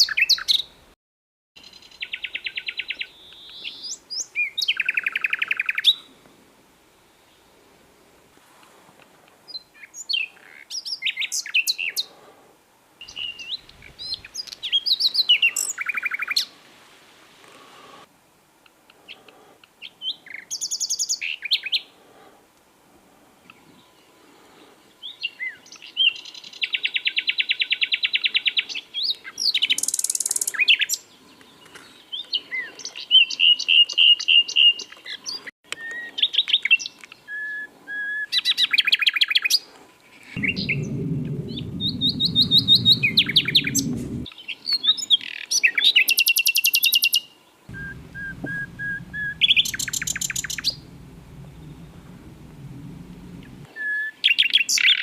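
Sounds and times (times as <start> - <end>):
low rumble: 40.4 - 44.3, 47.7 - 53.7
nightingale singing: 47.7 - 53.6.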